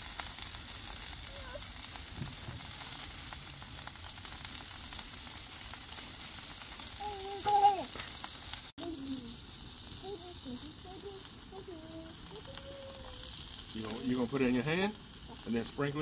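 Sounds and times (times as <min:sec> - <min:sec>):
metal spatula turning vegetables: 0:00.0 - 0:16.0
vegetables sizzling on griddle: 0:00.0 - 0:16.0
short high voice: 0:07.0 - 0:08.0.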